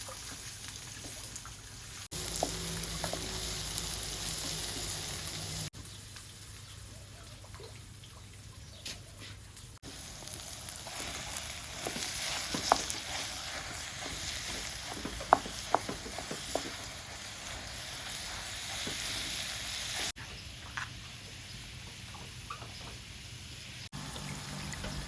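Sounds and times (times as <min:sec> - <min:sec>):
food sizzling in a pan: 0:00.0 - 0:05.8, 0:09.8 - 0:20.2
fire popping and crackling: 0:09.8 - 0:19.3.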